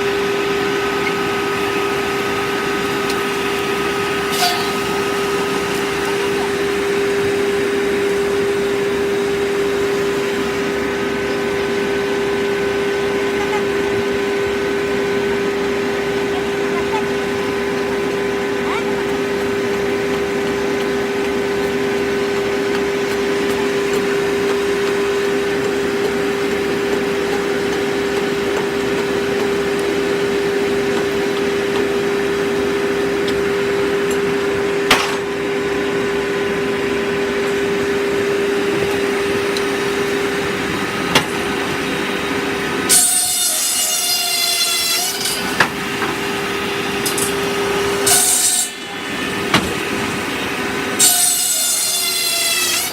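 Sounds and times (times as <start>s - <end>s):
sawmill machine hum: 0.0s - 52.9s
saw blade screeching: 4.2s - 6.0s, 42.9s - 45.6s, 48.0s - 48.8s, 51.0s - 52.9s.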